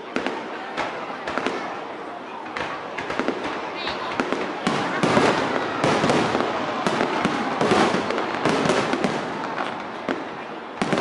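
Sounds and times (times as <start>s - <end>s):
firework bangs: 0.0s - 11.0s
firework crackle: 0.1s - 11.0s.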